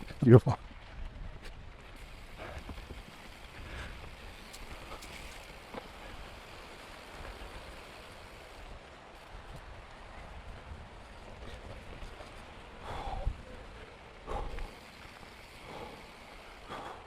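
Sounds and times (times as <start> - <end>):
wind rumble on microphone: 0.0 - 5.5, 8.5 - 14.8
bike tyres rolling over dirt: 0.0 - 17.0.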